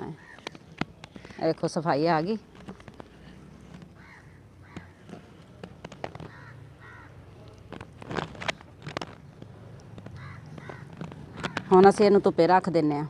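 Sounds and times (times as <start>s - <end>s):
bird calling: 0.0s - 1.5s, 3.2s - 5.4s, 6.1s - 7.2s, 10.0s - 12.1s.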